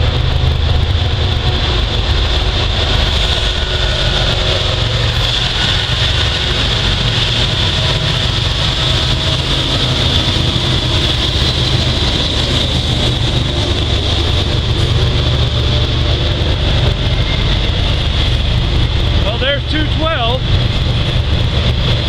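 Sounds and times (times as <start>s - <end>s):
engine rumble: 0.0s - 22.0s.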